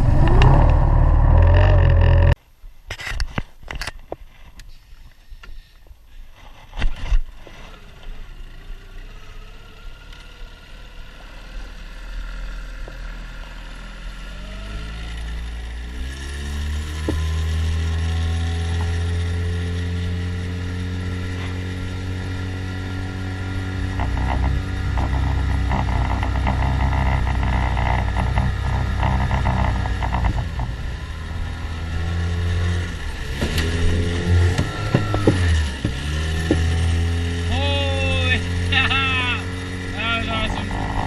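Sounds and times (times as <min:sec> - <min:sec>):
outboard motor speeding up: 0:00.0 - 0:02.4, 0:07.7 - 0:41.0
sharp knocks: 0:34.5 - 0:36.8.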